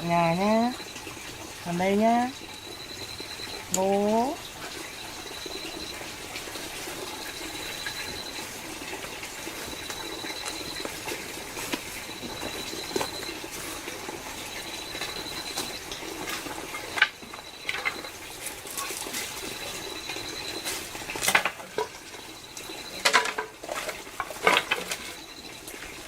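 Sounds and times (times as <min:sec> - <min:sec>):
faint high trill: 0:01.7 - 0:06.3, 0:07.0 - 0:08.6
household things clattering: 0:23.0 - 0:25.2.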